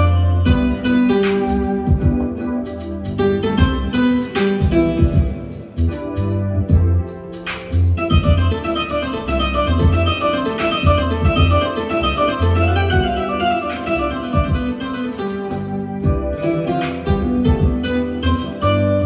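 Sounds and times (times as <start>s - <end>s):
instrumental pop backing track: 0.0s - 19.0s.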